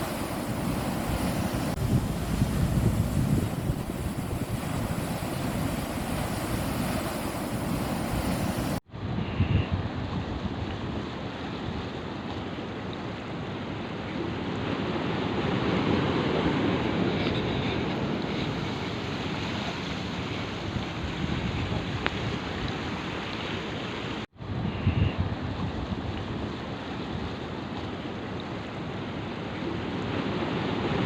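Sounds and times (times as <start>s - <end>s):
sea surf washing onto beach: 0.0s - 8.8s
wind buffeting microphone: 0.0s - 12.2s, 20.4s - 23.1s, 24.4s - 27.6s.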